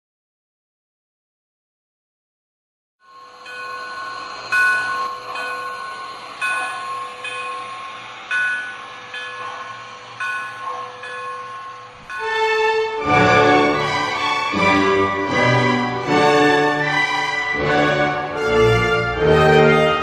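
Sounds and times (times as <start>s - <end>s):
steady whistle-like tone: 3.1s - 19.2s
regular accented beats: 12.1s - 20.0s.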